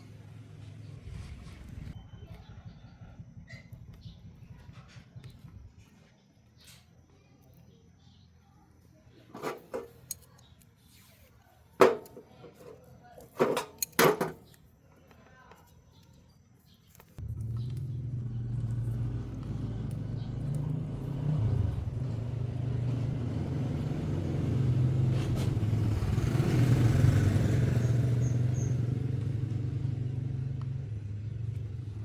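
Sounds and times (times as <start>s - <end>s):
vehicle motor hum: 17.2s - 32.0s.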